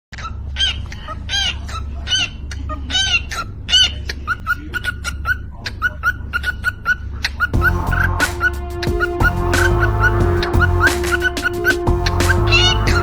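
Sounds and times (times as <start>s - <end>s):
steady low hum: 7.6s - 13.0s.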